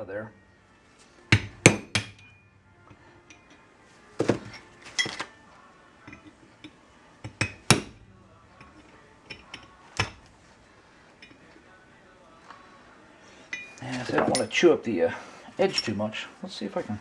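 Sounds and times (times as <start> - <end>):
hammer striking metal chisel: 1.3 - 2.5, 6.1 - 8.0, 8.6 - 10.3.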